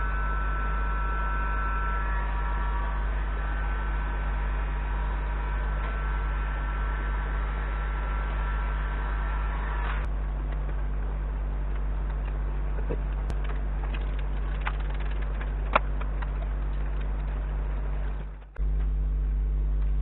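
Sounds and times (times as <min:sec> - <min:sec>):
faint high steady tones: 0:00.0 - 0:13.4
low electrical hum with hiss: 0:00.0 - 0:20.0.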